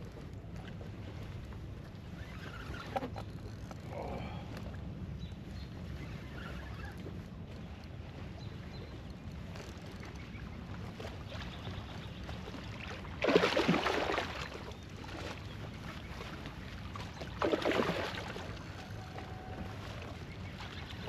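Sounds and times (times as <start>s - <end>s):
water splashing at a kayak: 9.4s - 21.0s.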